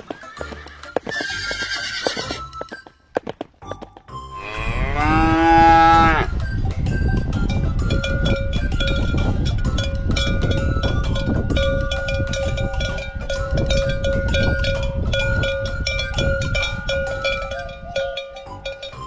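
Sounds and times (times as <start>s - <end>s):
bells clanking and jangling: 6.7s - 19.0s.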